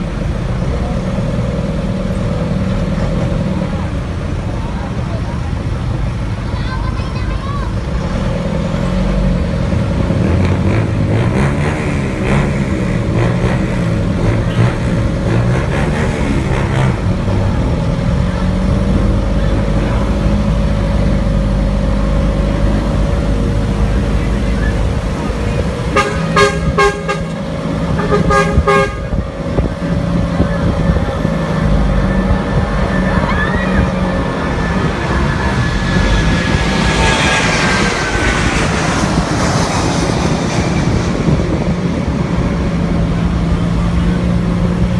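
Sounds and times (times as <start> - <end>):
street traffic: 0.0 - 44.9
truck engine running: 0.0 - 44.9
vehicle horn tooting: 25.9 - 29.2.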